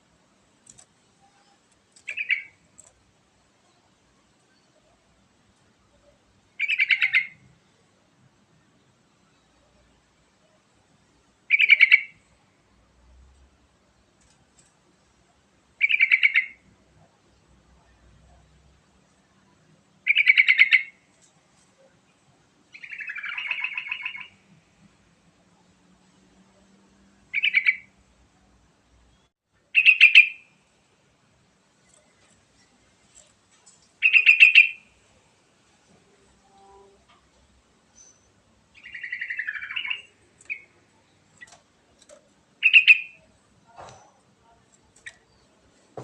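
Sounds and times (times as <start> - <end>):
bulbul singing: 29.1 - 30.5, 34.0 - 34.9, 37.9 - 41.6, 42.6 - 43.3.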